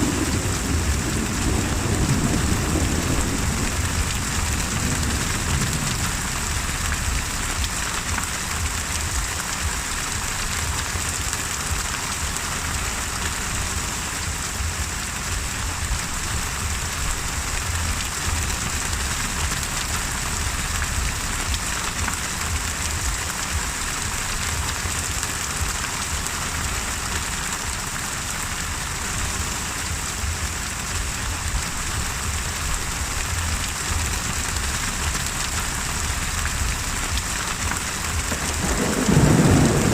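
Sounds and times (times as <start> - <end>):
constant low rumble: 0.0 - 39.9
heavy rain falling: 0.0 - 39.9.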